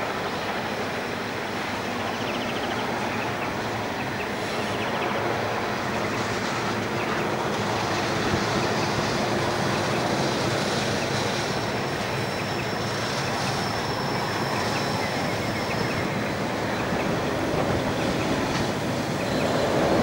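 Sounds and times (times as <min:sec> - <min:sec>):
steel wheels rumbling on rail: 0:05.6 - 0:20.0.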